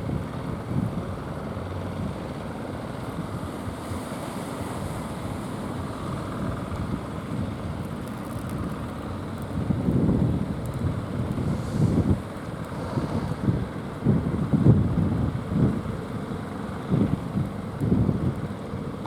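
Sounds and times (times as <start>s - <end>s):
sea surf: 1.6s - 9.4s, 10.7s - 17.5s
wind on microphone: 9.5s - 16.0s.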